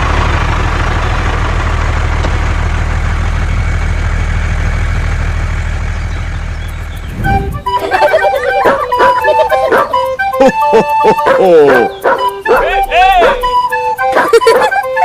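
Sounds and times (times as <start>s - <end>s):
truck engine idling: 0.0s - 15.0s
music: 7.2s - 15.0s.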